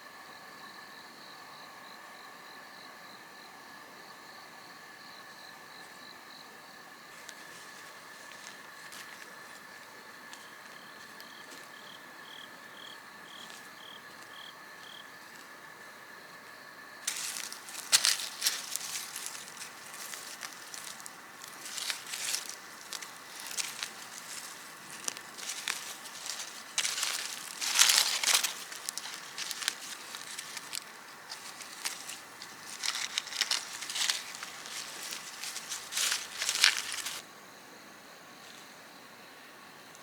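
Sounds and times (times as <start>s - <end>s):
rustling and crackling: 17.1s - 37.2s.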